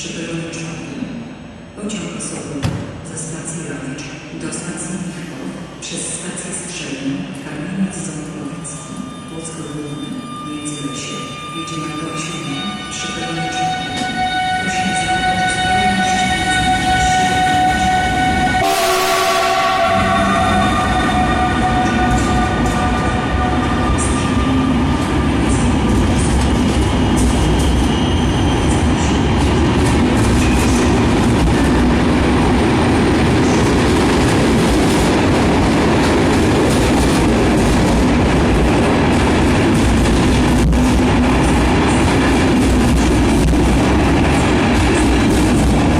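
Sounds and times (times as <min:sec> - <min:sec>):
train rumbling past: 0:11.4 - 0:45.9
train horn: 0:13.2 - 0:24.7.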